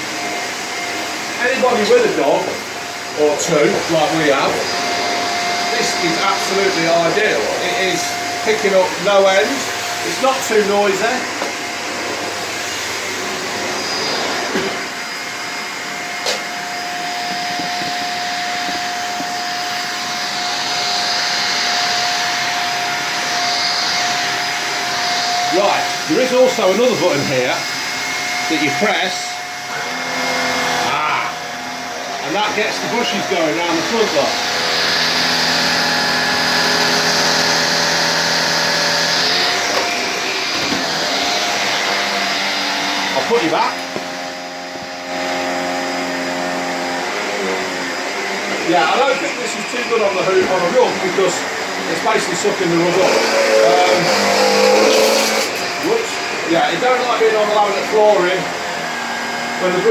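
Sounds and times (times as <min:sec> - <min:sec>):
vacuum cleaner motor whine: 0:00.0 - 0:59.9.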